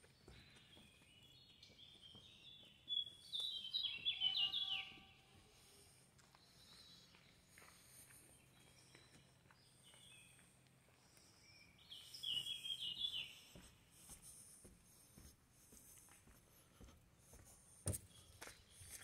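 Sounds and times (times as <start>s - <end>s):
bird high chirps: 0.6s - 5.2s, 11.5s - 13.6s
footsteps on wooden boards: 13.5s - 19.0s.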